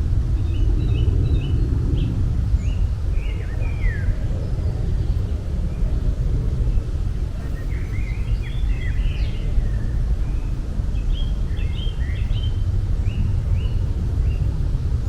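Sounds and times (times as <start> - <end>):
steady low rumble: 0.0 - 15.0
small birds chirping: 7.4 - 15.0.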